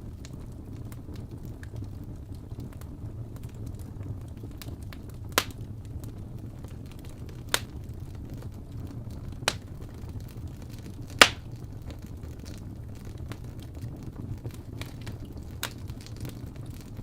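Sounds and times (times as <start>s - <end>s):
fire rumbling and crackling: 0.0s - 17.0s
loud sharp fire pops: 5.3s - 5.7s, 7.4s - 7.9s, 9.4s - 10.2s, 10.9s - 12.0s.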